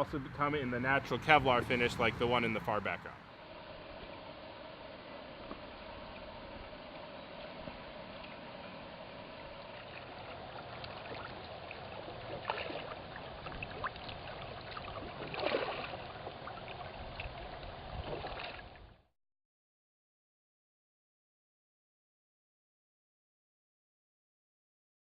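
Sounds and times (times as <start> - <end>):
water splashing and lapping: 3.3 - 19.0.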